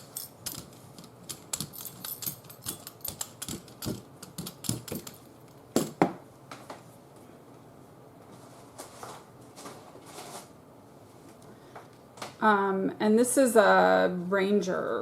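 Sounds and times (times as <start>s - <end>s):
craft tools clicking and tapping: 0.0s - 6.2s
loud knocks on tabletop: 5.8s - 6.2s.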